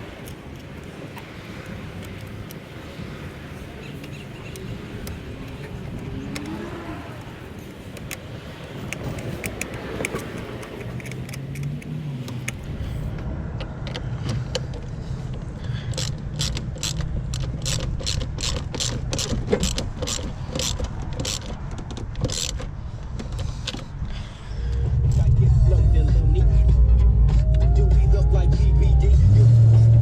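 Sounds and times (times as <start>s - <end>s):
regular clicking: 7.2s - 25.3s
car engine running: 24.4s - 30.0s.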